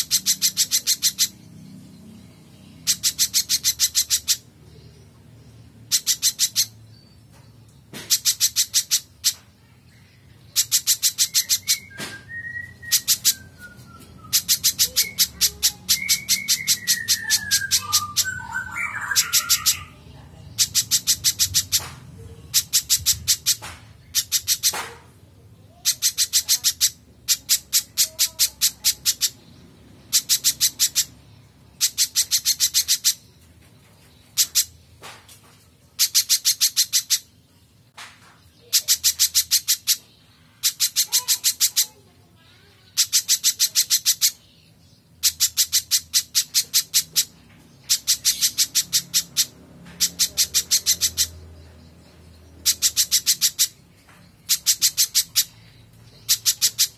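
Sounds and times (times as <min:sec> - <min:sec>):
bird calling rapid high notes: 0:10.5 - 0:20.0.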